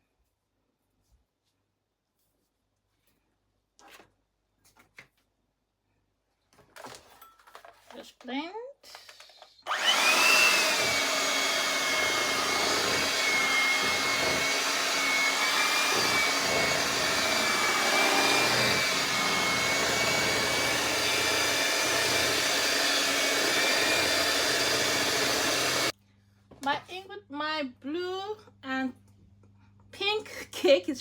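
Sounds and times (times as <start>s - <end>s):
electric mixer motor whine: 9.7s - 25.9s.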